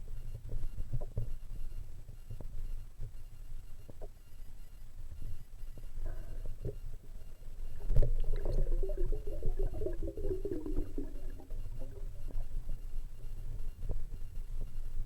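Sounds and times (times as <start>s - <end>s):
low underwater rumble: 6.2s - 14.7s
bubbling gurgle: 7.8s - 12.6s.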